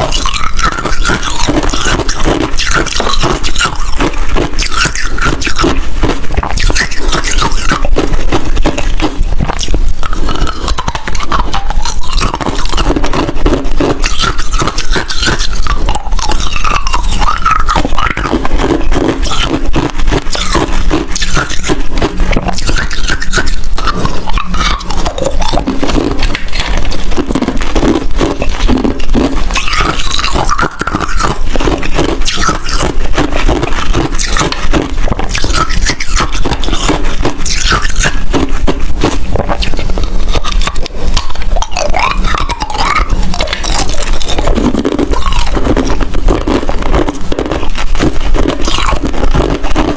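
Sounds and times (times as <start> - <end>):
ice being chewed and crunched: 0.0 - 49.9.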